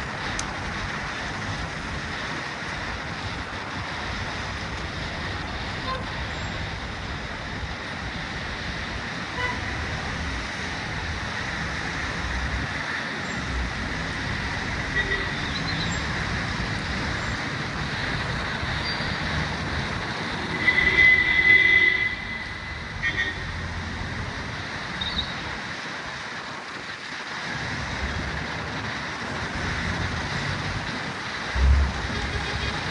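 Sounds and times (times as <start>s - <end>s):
passing vehicles hiss and rumble: 0.0s - 32.9s
car horn: 5.7s - 6.5s, 9.3s - 9.9s, 14.8s - 16.0s, 20.3s - 23.8s, 31.6s - 32.9s.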